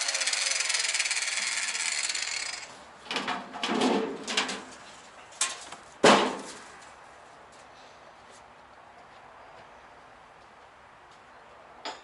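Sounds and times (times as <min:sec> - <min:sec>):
power tool whirring: 0:00.0 - 0:02.7
tools and parts clattering: 0:02.3 - 0:04.7.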